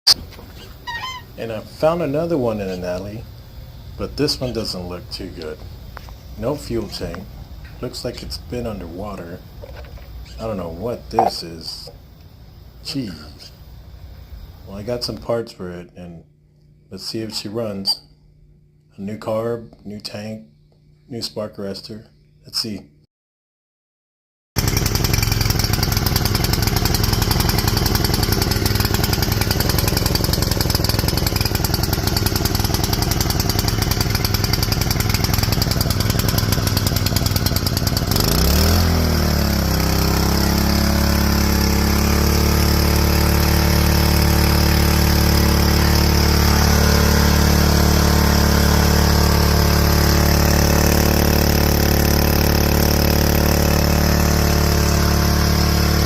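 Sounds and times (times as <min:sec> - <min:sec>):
pressure washer engine running: 0:11.2 - 0:11.4, 0:24.6 - 0:56.0.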